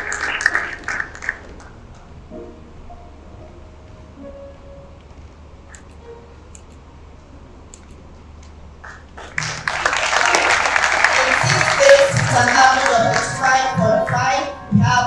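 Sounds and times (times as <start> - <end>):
audience clapping and cheering: 0.0 - 1.9, 8.8 - 14.3.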